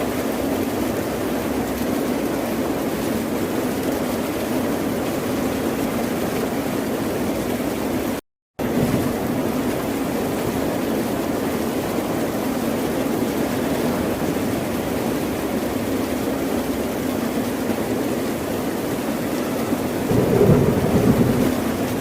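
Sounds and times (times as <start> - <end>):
ocean waves washing on shore: 0.0 - 22.0.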